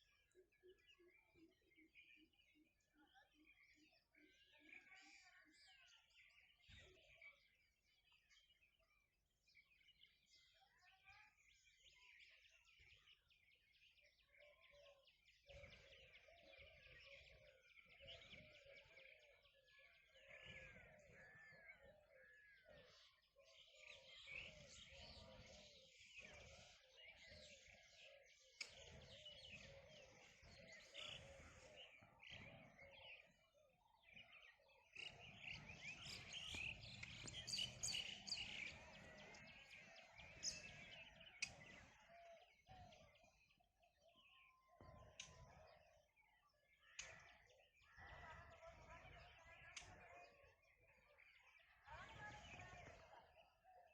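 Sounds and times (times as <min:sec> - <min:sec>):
birds chirping and calling: 0:11.4 - 0:53.9.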